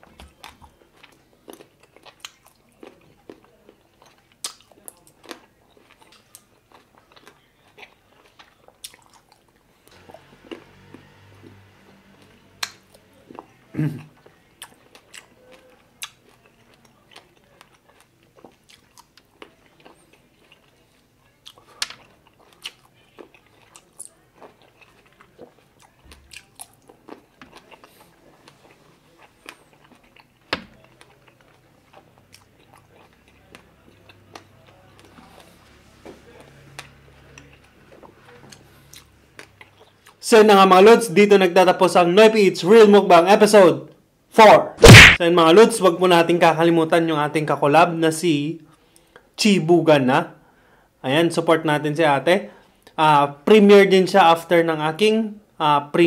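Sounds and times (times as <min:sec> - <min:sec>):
person chewing grapes: 0:00.1 - 0:11.6, 0:12.6 - 0:35.6, 0:36.3 - 0:40.2, 0:44.8 - 0:45.2
sharp mouth clicks: 0:44.8 - 0:45.2.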